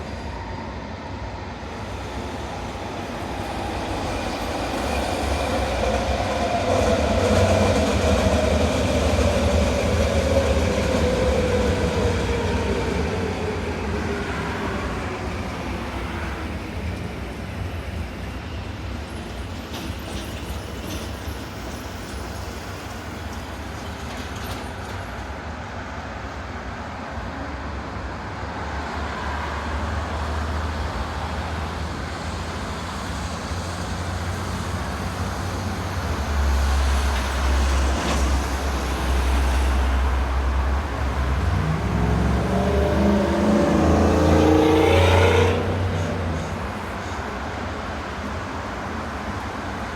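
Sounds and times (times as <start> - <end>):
rumble of road traffic: 23.4 - 49.9.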